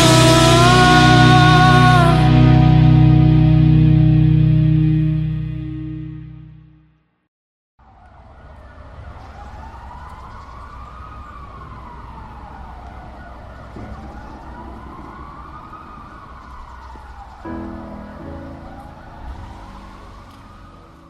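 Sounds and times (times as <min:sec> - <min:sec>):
siren wailing: 0:00.0 - 0:05.3, 0:07.8 - 0:21.0
low rumble: 0:00.0 - 0:06.4.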